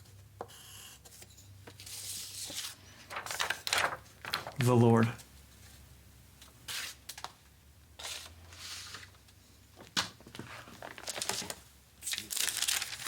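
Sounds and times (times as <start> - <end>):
rustling and crinkling: 1.7 - 4.7, 9.8 - 13.0.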